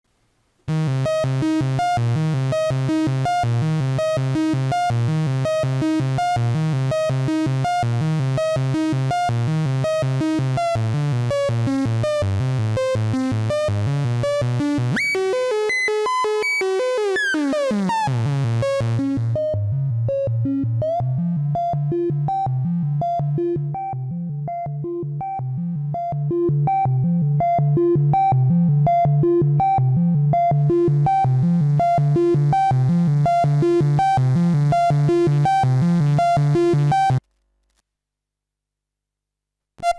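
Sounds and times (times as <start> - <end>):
buzzy sequenced synth line: 14.3 - 19.5.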